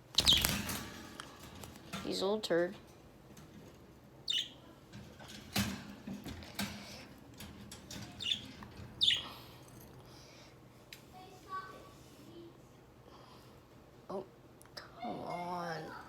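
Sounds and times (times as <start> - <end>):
bird chirping: 0.2 - 0.6, 4.3 - 4.7, 8.2 - 9.4.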